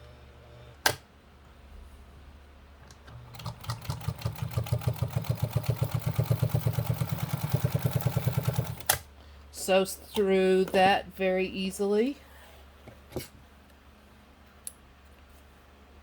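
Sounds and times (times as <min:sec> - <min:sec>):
sewing machine stitching: 0:03.2 - 0:09.0.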